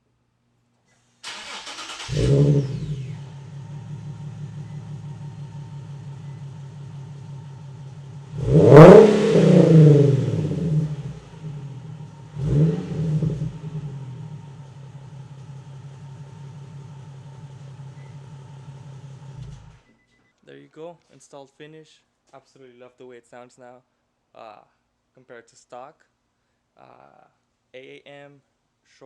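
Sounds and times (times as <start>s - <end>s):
car engine starting and idling: 1.2s - 19.9s
car engine revving: 1.3s - 19.8s.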